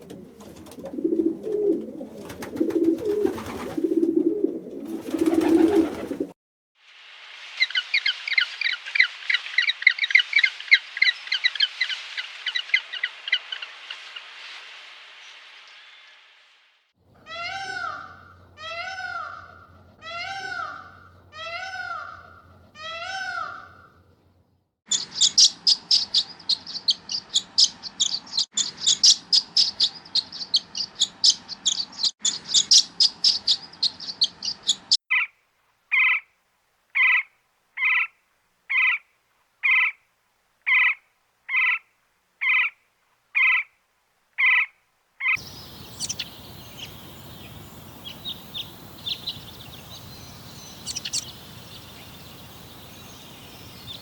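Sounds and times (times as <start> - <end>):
faint bird chirps: 44.4 - 54.0
repeated bird call: 44.4 - 54.0
rapid high-pitched bird chirping: 45.4 - 54.0.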